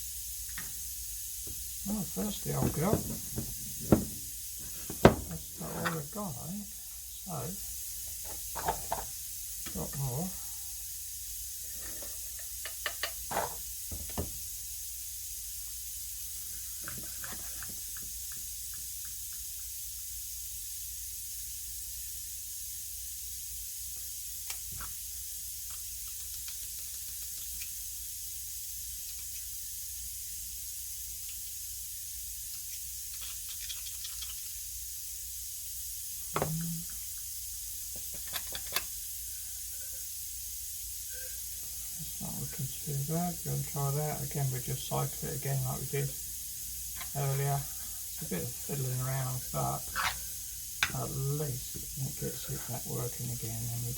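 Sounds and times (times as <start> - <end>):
steady hiss: 0.0 - 53.9
tool clicks and knocks: 4.9 - 6.0.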